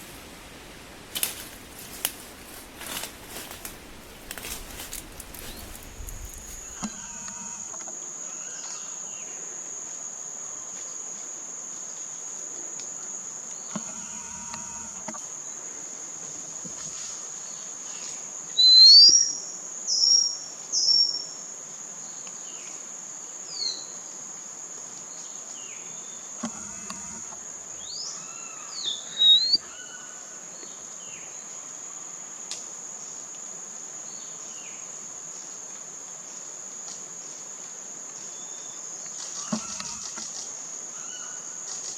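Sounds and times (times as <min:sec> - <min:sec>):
insects droning: 0:00.0 - 0:41.9
bird chirping: 0:18.6 - 0:19.4, 0:27.8 - 0:30.0.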